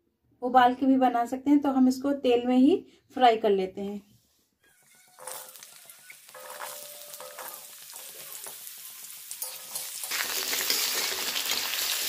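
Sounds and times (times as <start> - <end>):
metal ladle stirring: 5.0 - 12.0
potatoes sizzling in oil: 5.0 - 12.0.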